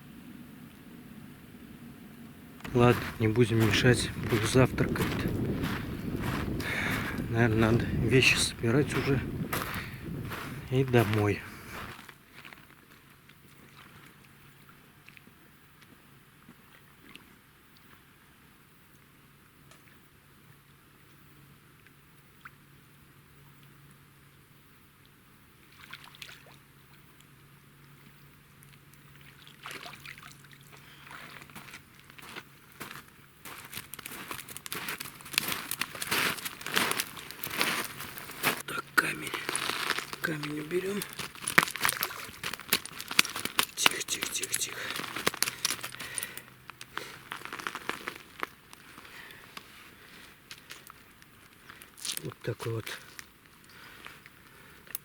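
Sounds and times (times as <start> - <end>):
faint rustling and handling: 31.0 - 54.8
crinkling and sharp clicks: 33.6 - 38.6, 39.3 - 49.7, 50.4 - 55.0
fish flapping: 33.7 - 38.6, 39.3 - 49.0.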